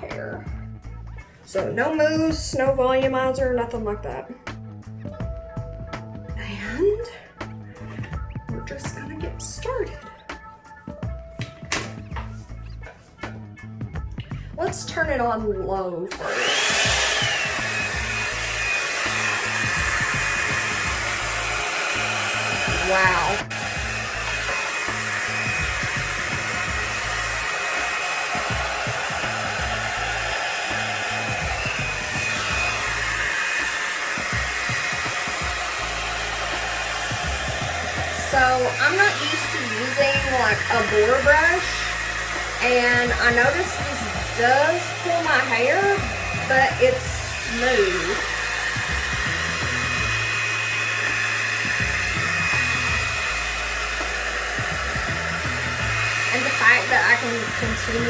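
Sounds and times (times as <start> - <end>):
hot air brush blowing air: 16.1 - 58.0.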